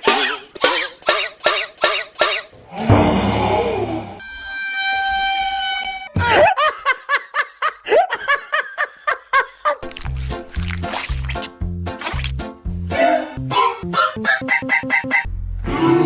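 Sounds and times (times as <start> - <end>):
high-pitched giggling: 0.0 - 2.6, 12.9 - 15.3
low thud: 2.8 - 3.6
music with a regular beat: 11.5 - 15.3.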